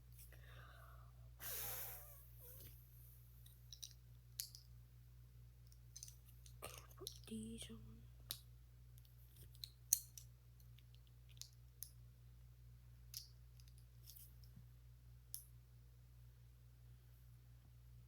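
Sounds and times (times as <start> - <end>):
faint steady hum: 0.0 - 18.0
plastic pieces clicking: 3.7 - 4.7, 5.9 - 7.3, 9.3 - 11.9.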